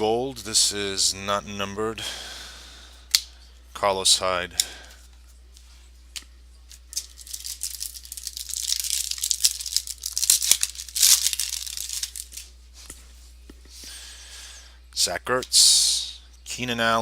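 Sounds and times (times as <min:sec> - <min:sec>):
foil wrapper tearing and crinkling: 0:06.9 - 0:12.5.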